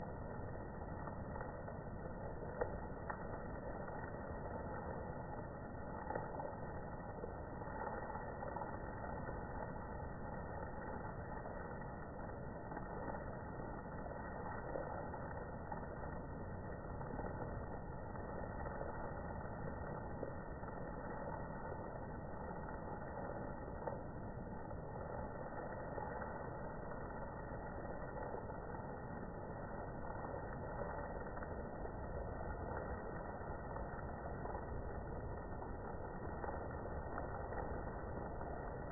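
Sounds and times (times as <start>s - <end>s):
heavy rain hiss: 0.0s - 38.9s.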